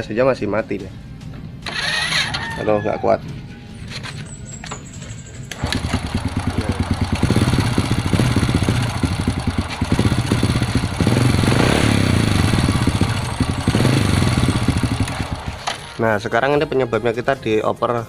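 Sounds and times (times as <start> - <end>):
motorcycle engine misfiring: 1.6 - 2.4, 3.9 - 16.0.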